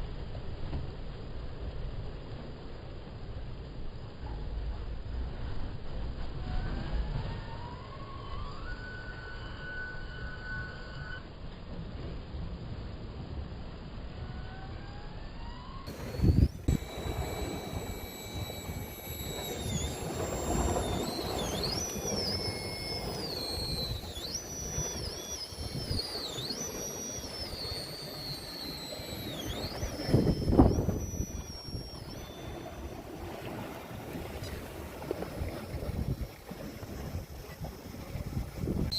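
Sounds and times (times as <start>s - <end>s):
electric motor whining: 6.4s - 11.2s, 14.1s - 38.9s.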